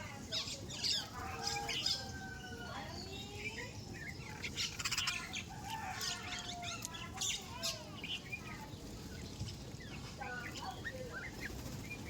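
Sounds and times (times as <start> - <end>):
flock of birds chirping: 0.0 - 12.0
wings fluttering: 4.4 - 12.0.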